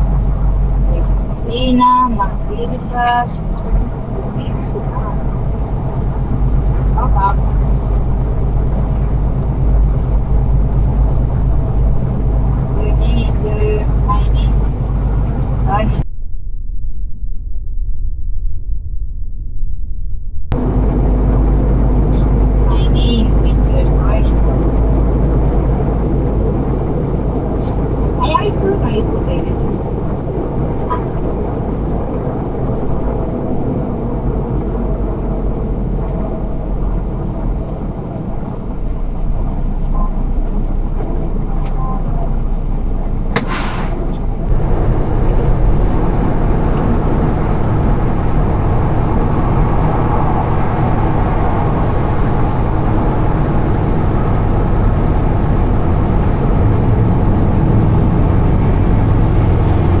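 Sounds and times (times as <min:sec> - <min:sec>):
diesel truck engine rumbling: 0:00.0 - 0:16.0, 0:20.6 - 1:00.0
short burst of noise: 0:43.4 - 0:44.8.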